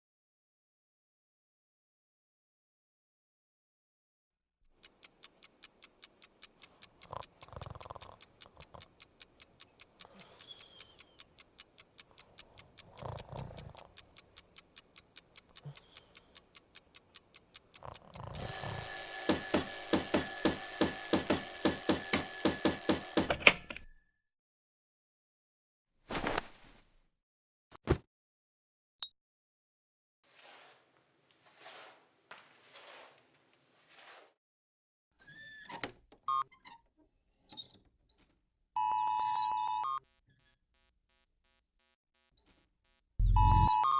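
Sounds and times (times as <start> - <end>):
clock ticking: 4.7 - 23.8, 40.0 - 43.9
bell alarm clock ringing: 18.4 - 24.0, 42.2 - 43.9
soft low sounds: 43.2 - 43.8.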